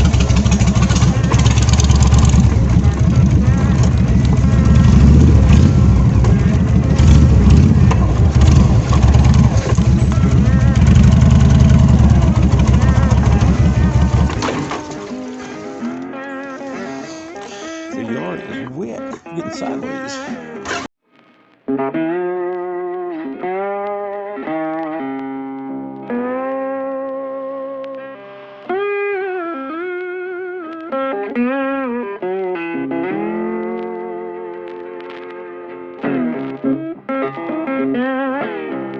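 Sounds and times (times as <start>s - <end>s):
motorcycle engine running: 0.0s - 15.8s
electric guitar bending notes: 0.0s - 20.9s, 21.6s - 38.9s.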